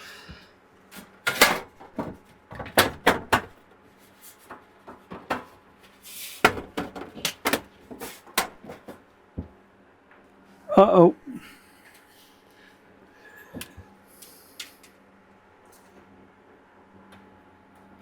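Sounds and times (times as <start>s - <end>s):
parts clicking and clattering: 1.3s - 3.6s.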